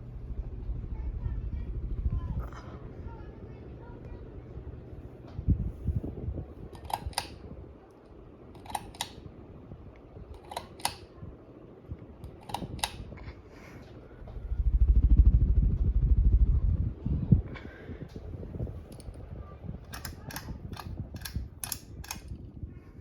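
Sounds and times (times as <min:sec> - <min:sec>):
loud low rumble: 0:00.0 - 0:06.5, 0:14.0 - 0:19.9
ceiling fan double clicks: 0:06.7 - 0:07.5, 0:08.5 - 0:09.3, 0:10.3 - 0:11.2, 0:12.2 - 0:13.2, 0:18.9 - 0:19.2, 0:19.8 - 0:22.5.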